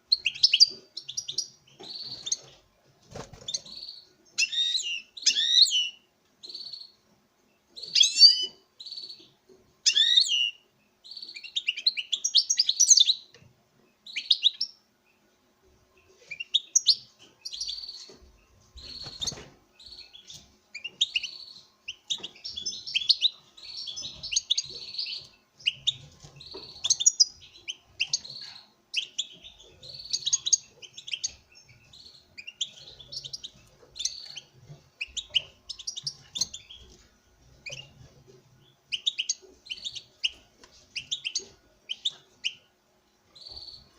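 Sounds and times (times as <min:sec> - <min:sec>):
goldfinch twittering song: 0:00.1 - 0:02.6, 0:07.8 - 0:13.2, 0:18.8 - 0:36.9, 0:38.9 - 0:42.6, 0:43.3 - 0:43.9.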